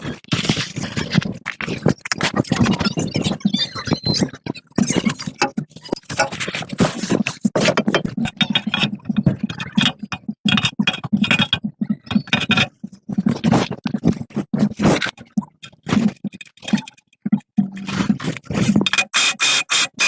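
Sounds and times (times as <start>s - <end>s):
clicks and knocks: 5.3s - 19.2s.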